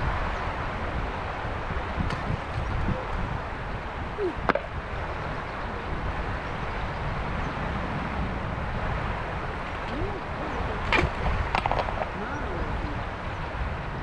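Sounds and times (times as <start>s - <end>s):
river flowing: 0.0s - 14.0s.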